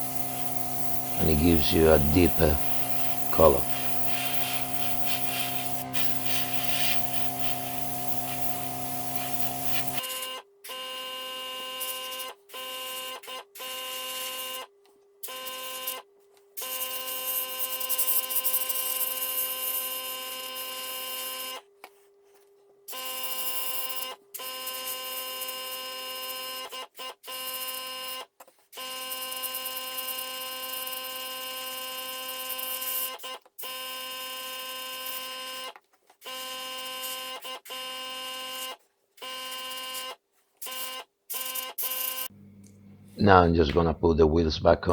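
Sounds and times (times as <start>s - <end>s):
steady machine hum: 0.0s - 10.0s, 42.3s - 44.0s.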